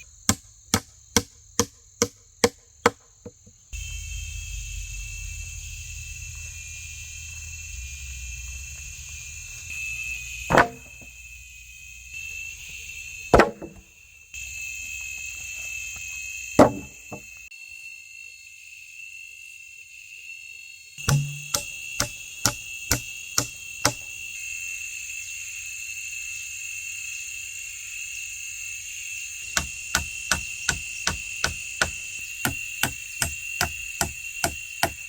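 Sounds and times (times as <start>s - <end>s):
rainforest insects droning: 0.0s - 35.0s
sharp chopping strikes: 10.5s - 11.0s, 13.4s - 13.8s, 16.6s - 17.0s, 21.0s - 24.0s, 29.5s - 35.0s.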